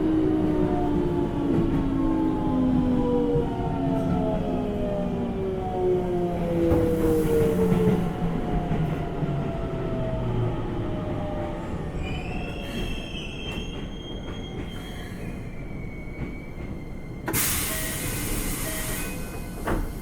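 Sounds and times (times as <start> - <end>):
brake and wheel squeal: 12.0 - 19.6
air hiss: 17.3 - 20.0.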